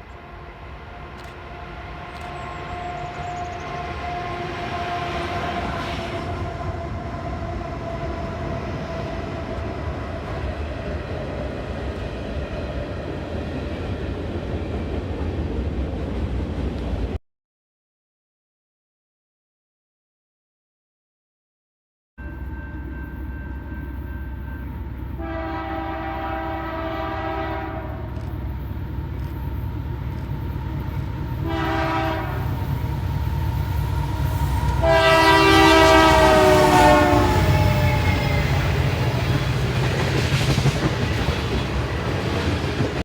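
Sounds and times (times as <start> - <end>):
locomotive air horn: 0.0 - 9.8, 22.2 - 28.6, 31.4 - 39.1
locomotive engine rumble: 22.2 - 43.0
wheels on rail: 22.2 - 43.0.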